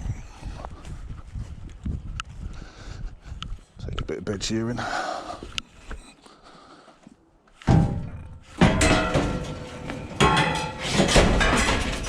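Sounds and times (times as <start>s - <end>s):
metal bed frames clanging: 7.7s - 12.0s.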